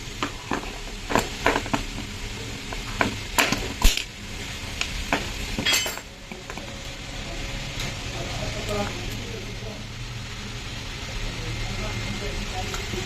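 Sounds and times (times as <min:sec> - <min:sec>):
metal tools clinking and clanking: 0:05.6 - 0:06.1.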